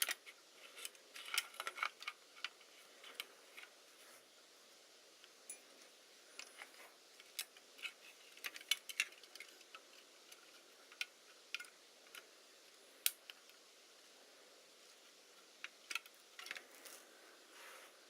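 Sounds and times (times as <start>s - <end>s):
small parts and tools clicking: 0.0s - 3.8s, 6.4s - 12.3s, 14.9s - 17.1s.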